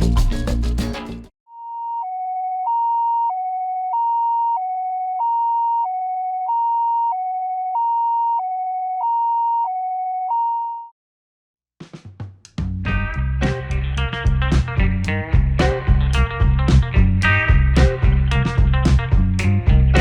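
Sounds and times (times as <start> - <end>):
two-tone electronic siren: 1.5 - 10.9.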